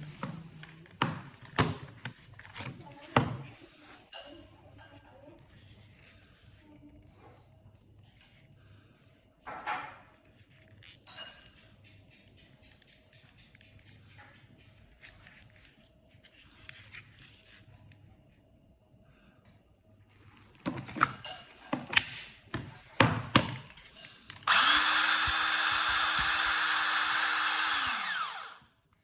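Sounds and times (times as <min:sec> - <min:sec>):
hydraulic cutter motor running: 0:24.5 - 0:28.7.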